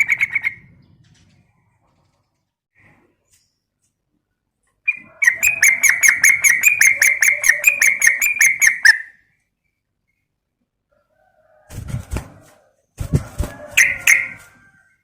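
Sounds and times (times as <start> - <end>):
bird calling rapid notes: 4.9 - 9.2.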